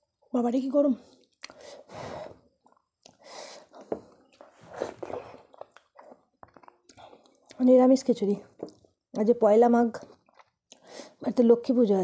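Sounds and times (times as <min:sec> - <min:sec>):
wet chewing: 0:02.6 - 0:07.6, 0:10.0 - 0:10.9.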